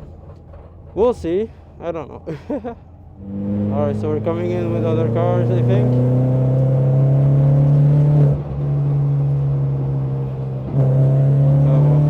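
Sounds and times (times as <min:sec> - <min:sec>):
race car engine under throttle: 0:02.6 - 0:12.0.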